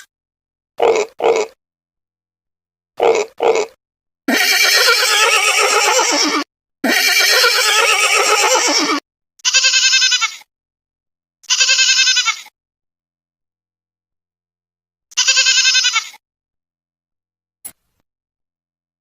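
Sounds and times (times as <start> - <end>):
different animal call: 3.0 - 10.4
farm animal bleating: 3.0 - 10.5, 11.4 - 12.5, 15.1 - 16.2.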